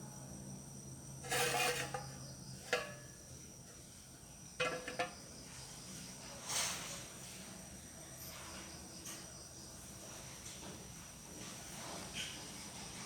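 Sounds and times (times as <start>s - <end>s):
insects trilling: 0.0s - 6.6s.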